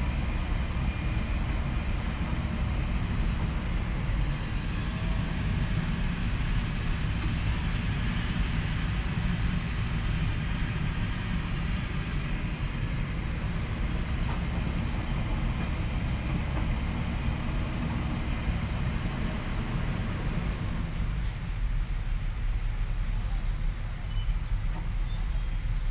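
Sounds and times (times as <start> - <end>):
construction machinery diesel rumble: 0.0 - 25.9.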